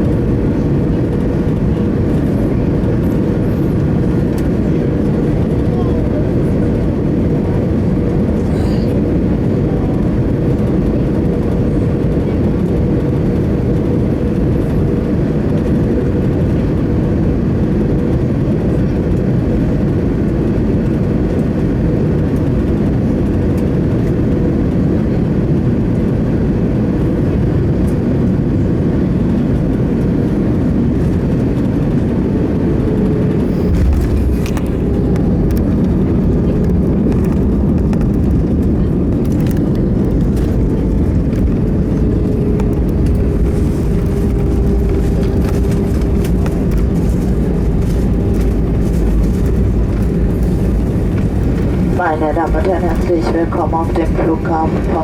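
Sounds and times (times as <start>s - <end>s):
airliner cabin engine rumble: 0.0s - 55.0s
faint steady whine: 40.4s - 55.0s.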